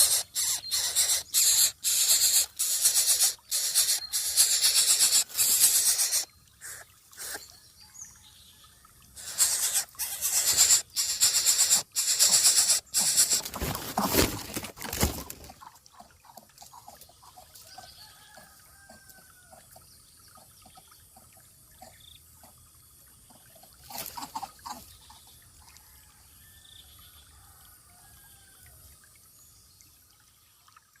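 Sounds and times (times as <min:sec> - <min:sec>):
faint high bird calls: 0:00.0 - 0:07.6.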